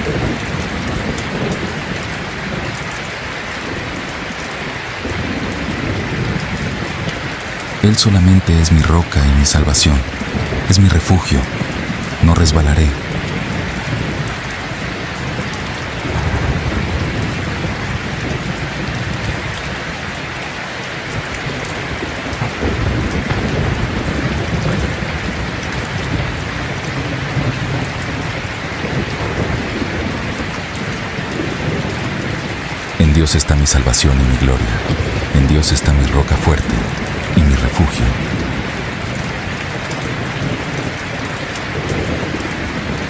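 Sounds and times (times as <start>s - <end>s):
thunder rumbling: 0.0s - 4.0s, 5.0s - 7.8s, 9.9s - 10.7s, 12.8s - 20.0s, 21.2s - 32.9s, 34.6s - 37.4s, 38.0s - 43.0s
rain falling: 0.0s - 43.0s.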